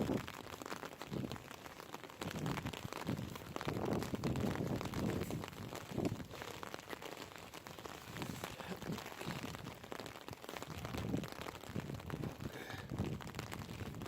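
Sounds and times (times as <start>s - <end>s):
rain pattering: 0.0s - 14.0s
dull low thuds and rumbles: 2.2s - 6.4s.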